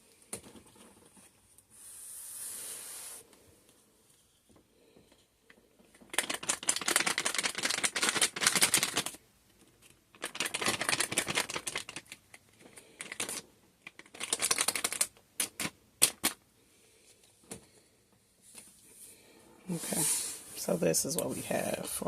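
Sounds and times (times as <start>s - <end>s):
shaker container rattling: 6.1s - 9.1s, 10.2s - 12.1s.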